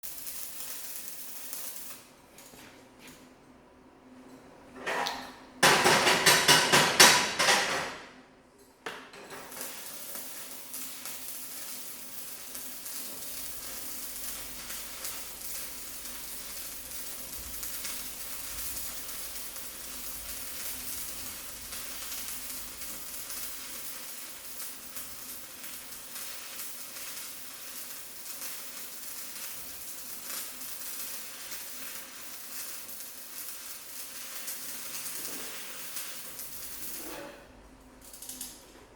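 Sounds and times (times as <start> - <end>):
welding arc crackling: 0.0 - 2.4, 9.3 - 37.2, 37.9 - 38.7.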